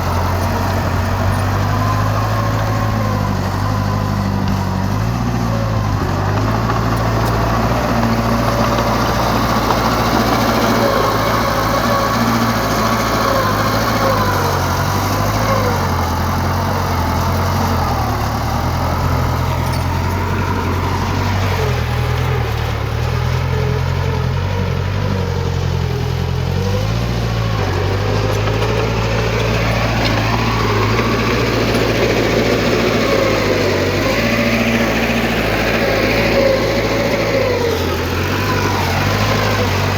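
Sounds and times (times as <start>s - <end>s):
diesel earthmoving machinery: 0.0s - 39.9s.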